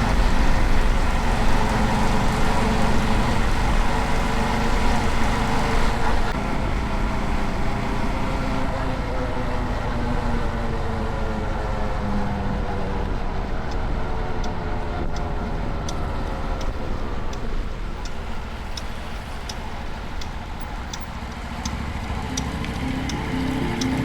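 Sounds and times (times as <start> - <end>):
sharp ticking: 13.7 - 24.0
motorcycle engine slowing: 14.9 - 24.0
low rushing noise: 21.1 - 24.0.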